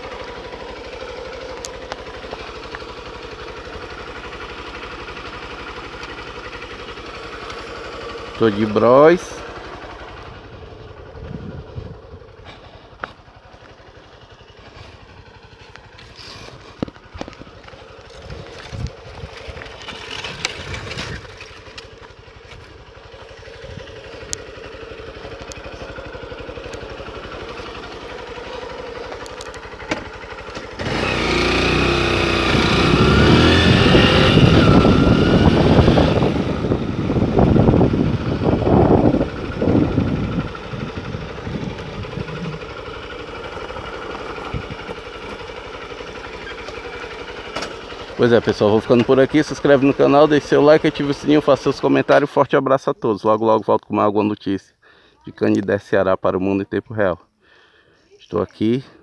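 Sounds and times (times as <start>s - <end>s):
motorcycle engine idling: 0.0s - 53.4s
scattered clicks: 24.2s - 25.8s, 29.0s - 30.8s.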